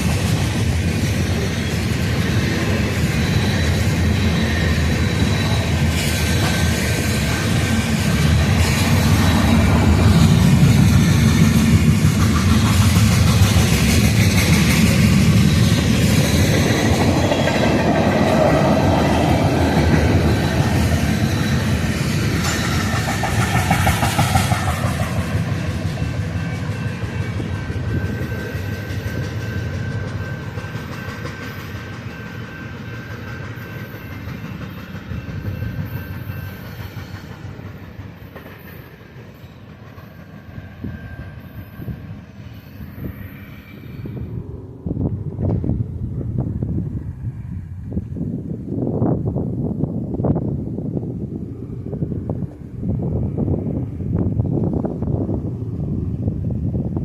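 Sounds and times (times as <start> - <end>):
train wheels clicking over rail joints: 0.0 - 47.4.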